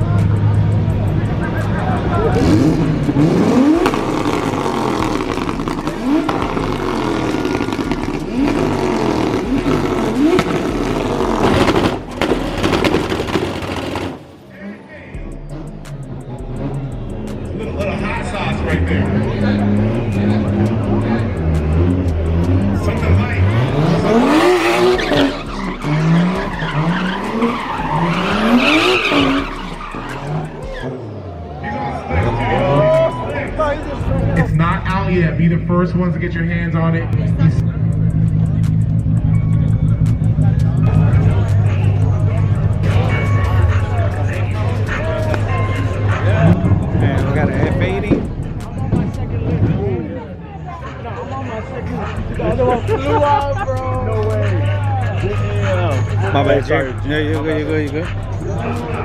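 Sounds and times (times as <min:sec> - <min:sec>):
car engine revving: 0:00.0 - 0:59.0
sharp cracks: 0:03.9 - 0:14.4.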